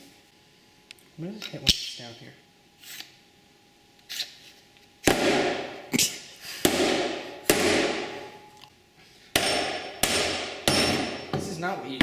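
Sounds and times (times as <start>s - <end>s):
hammer striking metal: 5.0s - 5.7s, 6.6s - 8.4s, 9.3s - 11.6s.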